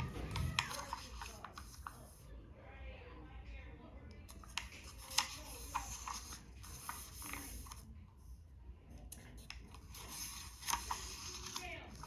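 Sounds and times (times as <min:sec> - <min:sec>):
book pages turning: 0:00.0 - 0:02.2, 0:04.3 - 0:07.9, 0:09.2 - 0:12.0.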